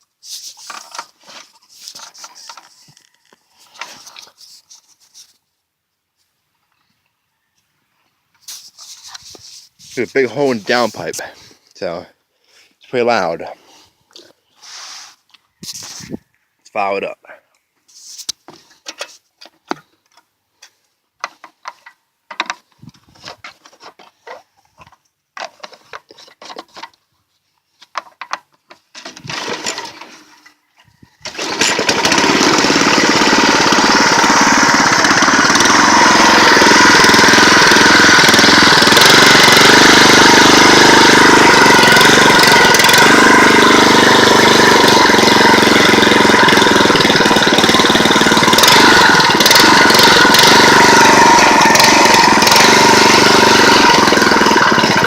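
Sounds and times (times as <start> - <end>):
loud log splitter engine running: 29.0 - 30.2, 31.2 - 55.0.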